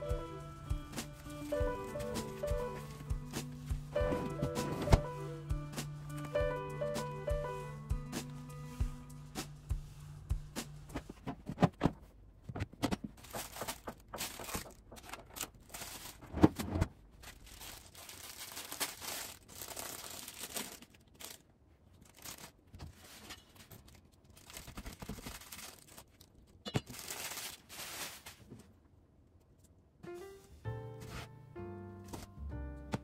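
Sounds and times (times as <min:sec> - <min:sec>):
plastic bags crinkling and tearing: 0:13.1 - 0:16.4, 0:17.0 - 0:28.5.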